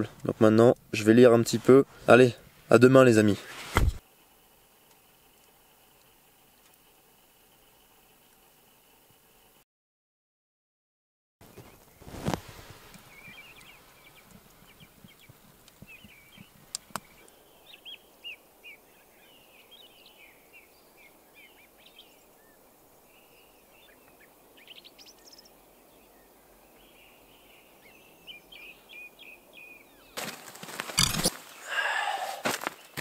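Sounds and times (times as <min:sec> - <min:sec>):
faint steady hiss: 0:00.0 - 0:09.6, 0:11.4 - 0:33.0
small birds chirping: 0:11.4 - 0:33.0.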